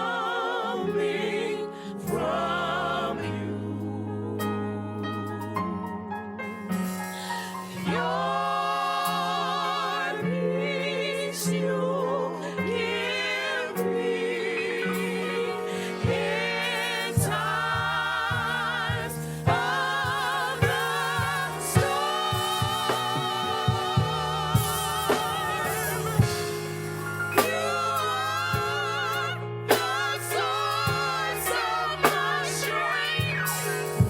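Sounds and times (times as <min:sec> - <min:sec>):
gospel choir singing: 0:00.0 - 0:34.0
drum hits: 0:17.2 - 0:27.9.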